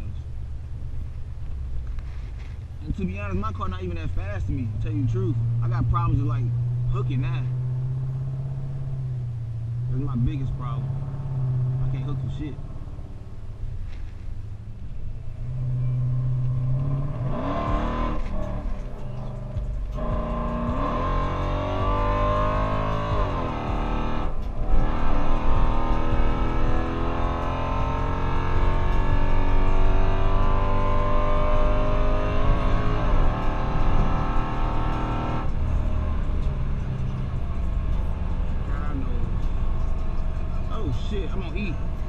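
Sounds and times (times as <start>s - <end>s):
car engine accelerating hard: 0.0s - 42.0s.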